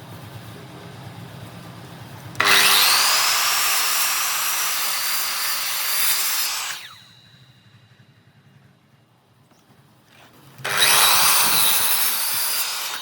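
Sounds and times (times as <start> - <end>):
electric power tool cutting wood: 2.4 - 7.2, 10.6 - 13.0.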